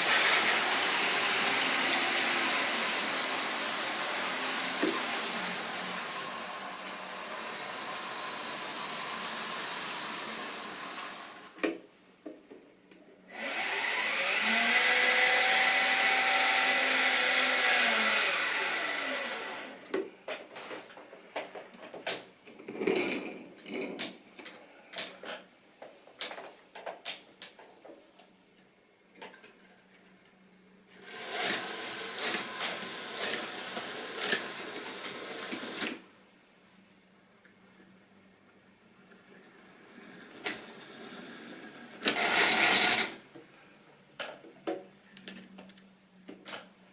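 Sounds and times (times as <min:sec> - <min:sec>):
model train motor whine: 0:13.3 - 0:19.8, 0:39.6 - 0:43.2.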